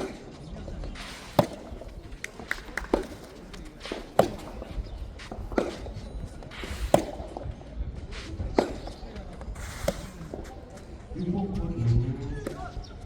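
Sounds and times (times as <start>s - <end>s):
tennis ball pops: 1.0s - 7.6s, 8.5s - 10.9s, 12.4s - 12.9s.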